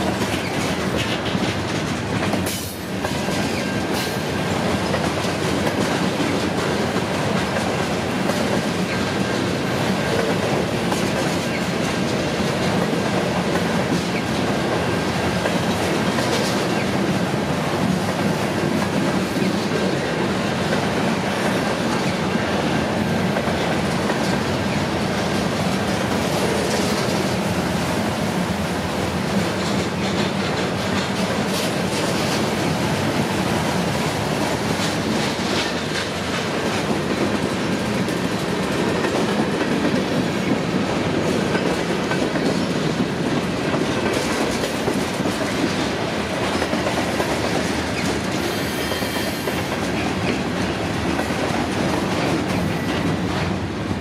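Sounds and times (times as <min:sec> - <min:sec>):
freight cars rumbling on rails: 0:00.0 - 0:54.0
high wheel squeals: 0:48.4 - 0:49.7.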